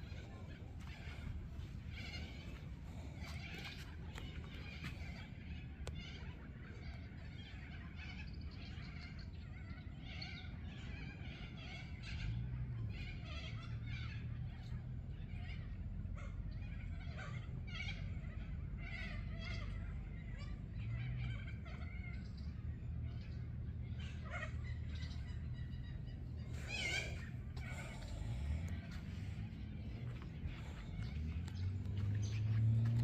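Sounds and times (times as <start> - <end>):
wetland birds calling: 0.0 - 33.0
low rumble: 24.6 - 33.0.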